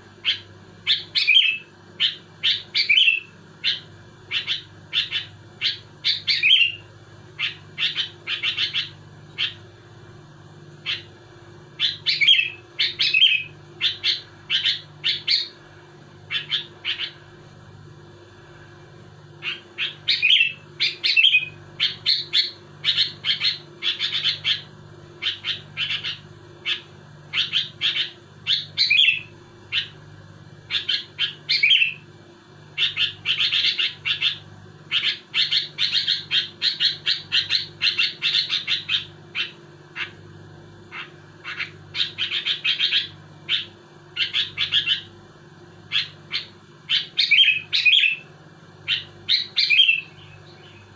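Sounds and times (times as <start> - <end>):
faint steady hum: 0.0 - 50.9
bulbul singing: 0.2 - 9.7, 10.8 - 15.6, 16.2 - 17.3, 19.4 - 30.0, 30.6 - 32.1, 32.7 - 40.2, 40.9 - 45.2, 45.8 - 50.9.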